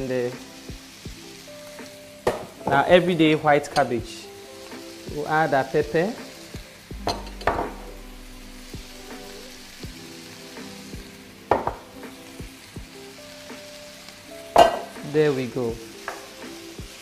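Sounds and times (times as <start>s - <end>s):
food sizzling in a frying pan: 0.0s - 17.0s
sharp knocks against pan: 11.5s - 11.8s, 14.6s - 14.9s.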